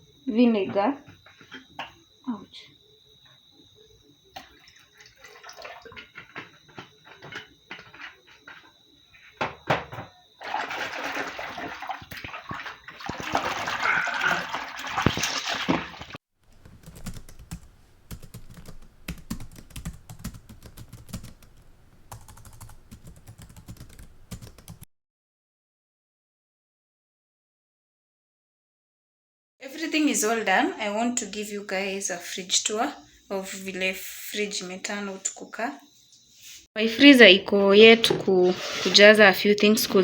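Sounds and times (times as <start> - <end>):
kitchen items clicking and knocking: 5.1 - 8.7, 9.3 - 10.2
tap running: 9.3 - 13.8, 14.6 - 19.8.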